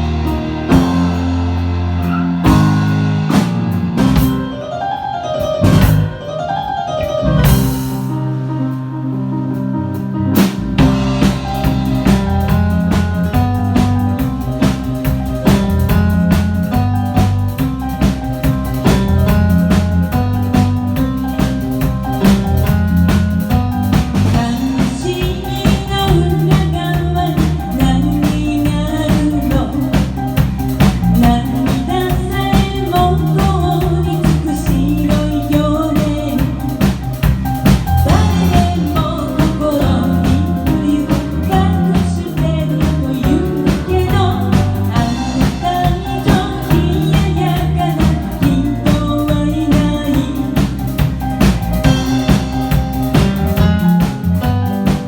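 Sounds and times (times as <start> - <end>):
band playing pop song: 0.0 - 8.4, 10.4 - 55.0
person singing: 24.4 - 30.3, 31.0 - 36.8, 38.0 - 51.2.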